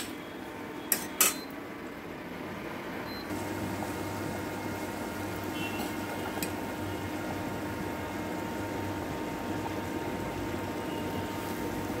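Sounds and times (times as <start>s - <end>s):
okra sizzling in oil: 3.3s - 12.0s.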